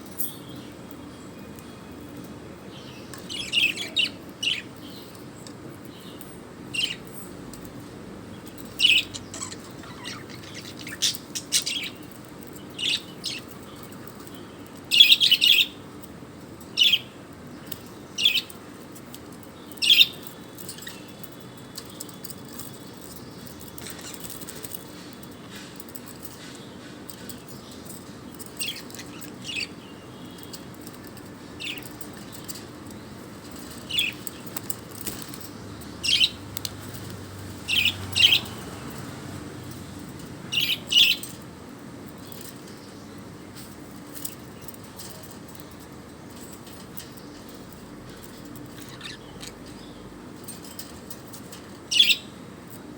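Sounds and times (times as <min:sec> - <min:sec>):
bird chirping: 0:02.7 - 0:05.2, 0:08.3 - 0:15.8, 0:26.4 - 0:38.8, 0:40.5 - 0:41.4, 0:46.6 - 0:51.0, 0:51.9 - 0:52.4.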